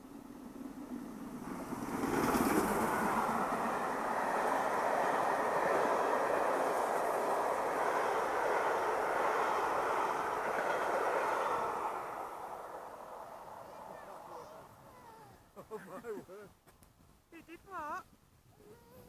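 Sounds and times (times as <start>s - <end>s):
wheels rattling on rail: 0.0s - 14.9s
steam train passing: 0.0s - 16.3s.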